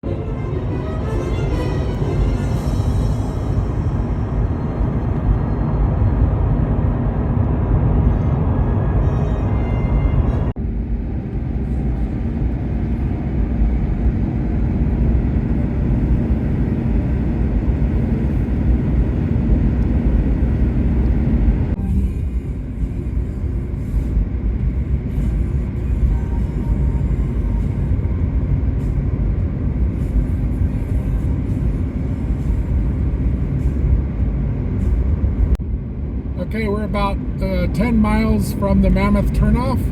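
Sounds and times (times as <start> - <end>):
car cabin road and engine rumble: 0.0 - 39.9.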